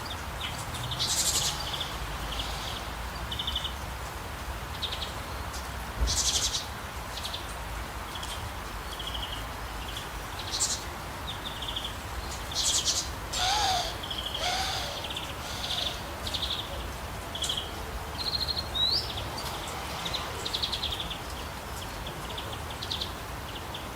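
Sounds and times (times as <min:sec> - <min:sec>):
songbirds chirping and trilling: 0:00.0 - 0:23.9
steady background hiss: 0:00.0 - 0:23.9
lower bird calls: 0:12.5 - 0:17.6.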